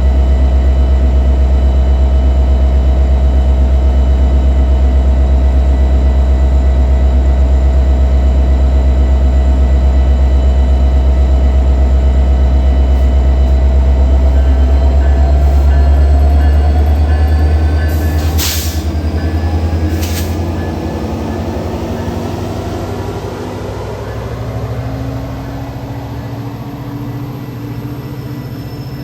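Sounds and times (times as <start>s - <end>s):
train rumbling past: 10.2s - 29.0s
ringing tones: 11.0s - 26.3s
short hiss: 20.0s - 20.4s.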